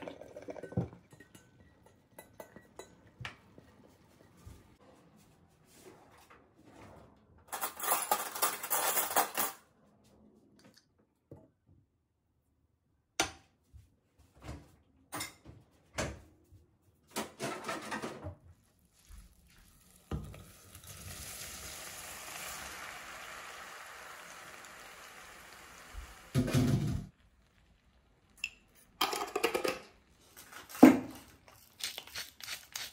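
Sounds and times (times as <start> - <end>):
dishes and cutlery clinking: 0.4 - 4.6, 7.5 - 9.6.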